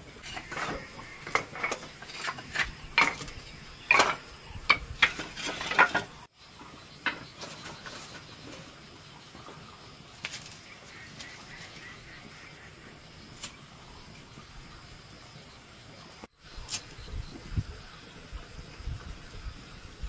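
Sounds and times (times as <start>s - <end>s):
metal spatula scraping a wok: 0.1s - 6.2s.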